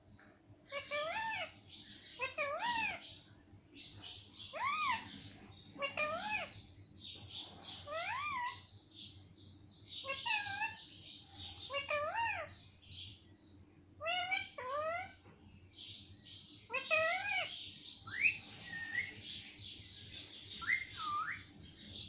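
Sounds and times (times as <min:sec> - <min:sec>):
parrot calling: 0:00.6 - 0:03.2, 0:04.4 - 0:06.6, 0:07.8 - 0:08.7, 0:10.0 - 0:12.6, 0:14.0 - 0:15.2, 0:16.7 - 0:19.4, 0:20.5 - 0:21.5.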